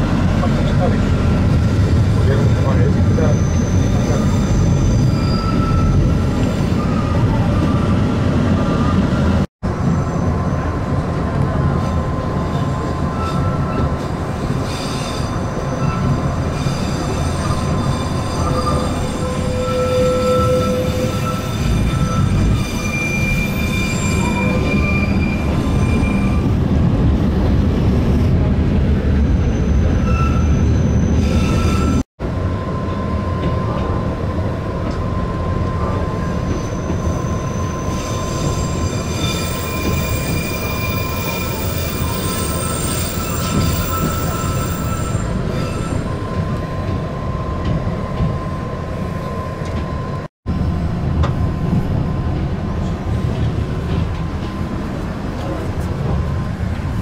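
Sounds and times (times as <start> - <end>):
railcar rumbling: 0.0 - 57.0
high wheel squeals: 3.1 - 7.2, 14.6 - 26.6, 29.4 - 32.0, 35.9 - 46.4.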